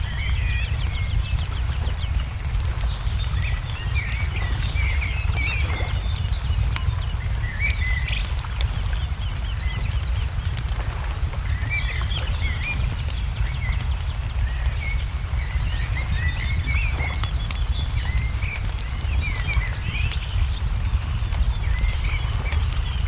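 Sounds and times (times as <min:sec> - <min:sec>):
small birds chirping: 0:00.0 - 0:23.0
wood fire crackling: 0:00.0 - 0:23.0.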